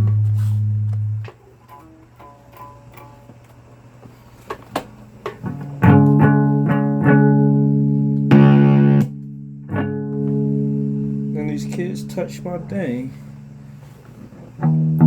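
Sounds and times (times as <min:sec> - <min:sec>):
guitar strummed chords: 0:00.0 - 0:03.4, 0:05.2 - 0:15.0
guitar picked notes: 0:05.4 - 0:15.0.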